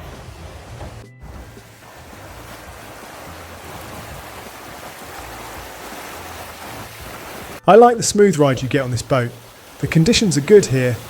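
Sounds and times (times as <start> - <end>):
water rushing along hulls: 0.0 - 11.0.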